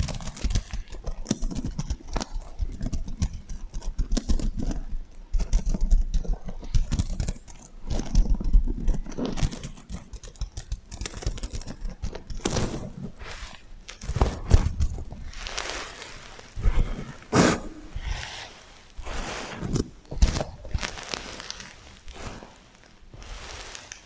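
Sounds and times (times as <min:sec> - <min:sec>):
tapping on sequin pillow: 0:00.0 - 0:13.2.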